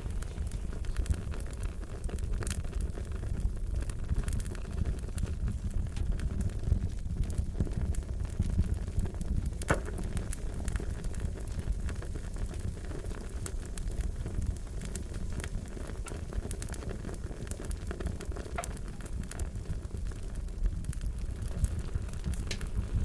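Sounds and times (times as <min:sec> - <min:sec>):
fire popping and snapping: 0:00.0 - 0:23.0
wood fire crackling: 0:00.0 - 0:23.0.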